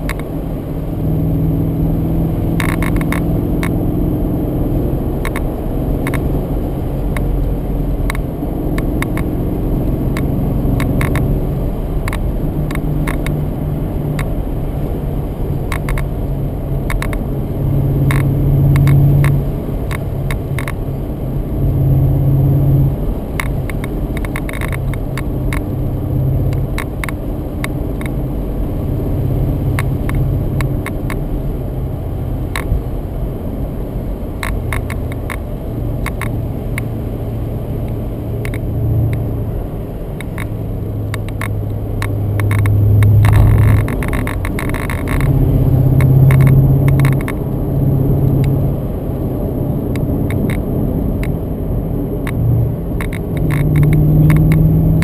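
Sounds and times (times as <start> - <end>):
car engine accelerating: 0.0 - 55.0
road noise: 0.0 - 55.0
short clicks and knocks: 2.6 - 3.8, 41.1 - 45.4, 46.0 - 47.4.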